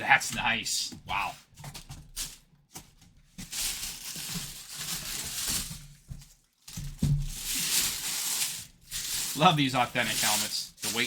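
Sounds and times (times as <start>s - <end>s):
plastic packaging crinkling: 1.7s - 11.0s.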